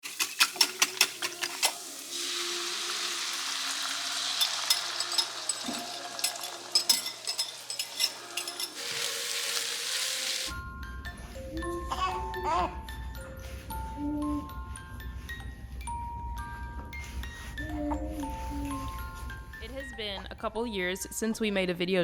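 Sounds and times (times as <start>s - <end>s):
utensils clicking and clinking: 0.0s - 2.4s, 3.8s - 10.5s
sizzling hiss: 1.0s - 6.8s, 7.5s - 10.5s.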